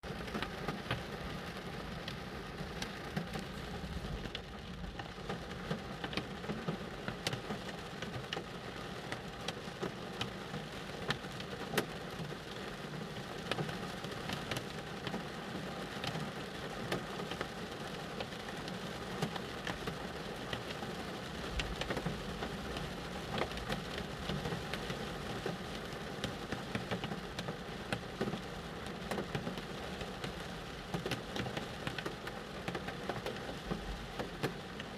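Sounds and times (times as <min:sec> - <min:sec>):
rain pattering on a car: 0:00.0 - 0:34.9.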